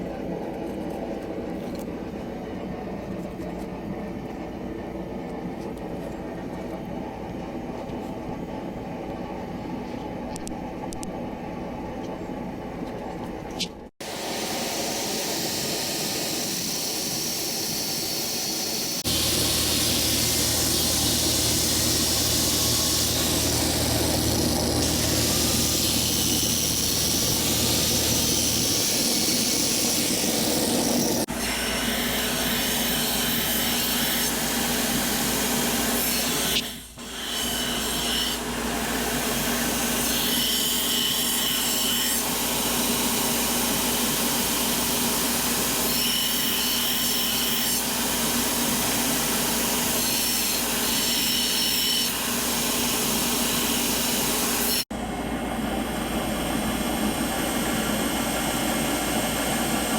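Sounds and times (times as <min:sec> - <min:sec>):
power tool grinding metal: 0:14.2 - 0:44.6
motor hum: 0:18.8 - 0:32.3.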